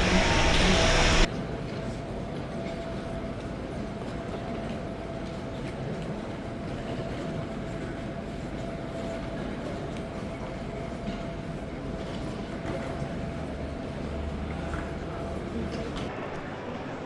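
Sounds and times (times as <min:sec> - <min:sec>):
vehicle or machinery rumbling: 0:00.0 - 0:01.3.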